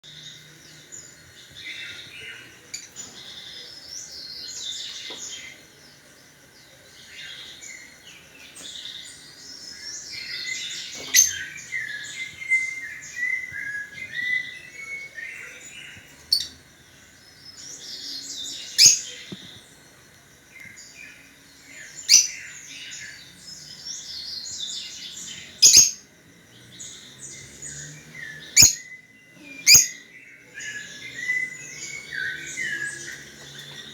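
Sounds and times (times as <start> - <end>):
songbirds chirping and twittering: 0.0 - 33.9.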